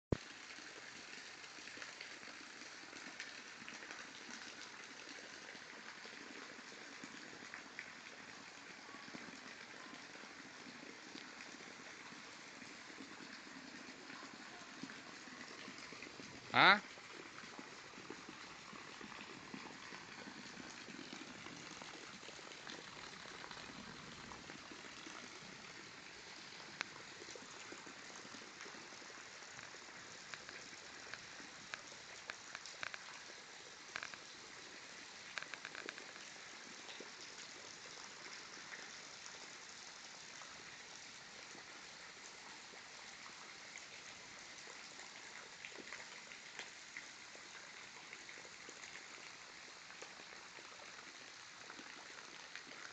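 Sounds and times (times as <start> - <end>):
sharper raindrops: 0.1 - 36.8
steady rain falling: 0.1 - 52.9.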